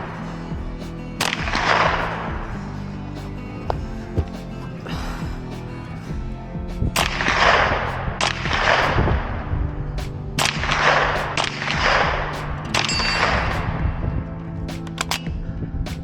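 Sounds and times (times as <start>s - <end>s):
background music: 0.0s - 16.0s
gunshots with echo: 10.4s - 14.0s.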